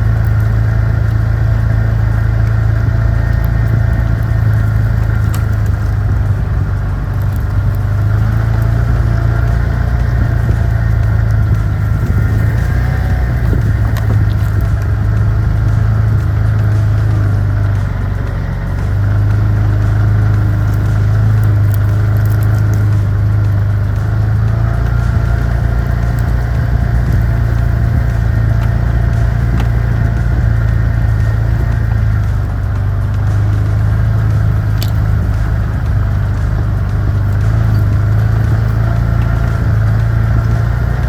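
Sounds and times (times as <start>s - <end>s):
excavator engine running: 0.0s - 41.0s
hydraulic whine: 0.0s - 41.0s.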